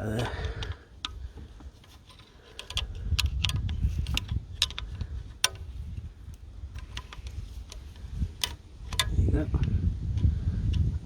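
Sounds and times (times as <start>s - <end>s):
screwdriver clicking and tapping: 2.1s - 5.6s.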